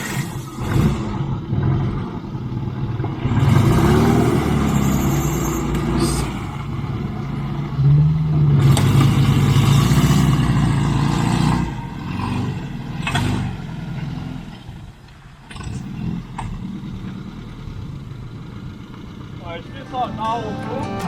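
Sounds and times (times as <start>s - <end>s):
truck engine revving: 0.0s - 14.6s.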